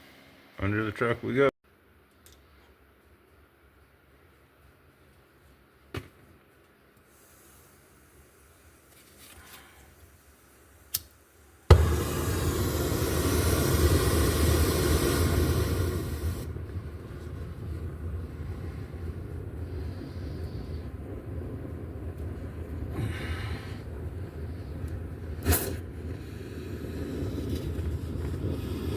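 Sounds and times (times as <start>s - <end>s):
torch flame hissing: 7.0s - 9.0s, 9.9s - 28.9s
torch lighting with a pop: 10.9s - 17.4s, 24.9s - 25.9s.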